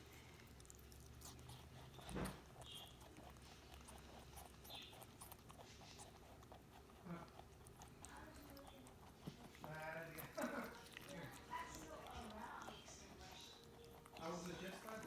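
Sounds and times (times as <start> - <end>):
rabbit chewing crunchy food: 0.0 - 15.0
thump: 2.1 - 2.4.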